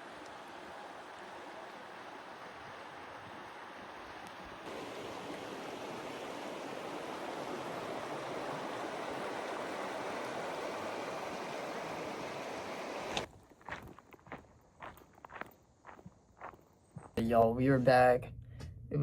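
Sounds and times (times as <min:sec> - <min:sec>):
stream water rushing: 0:00.0 - 0:13.3.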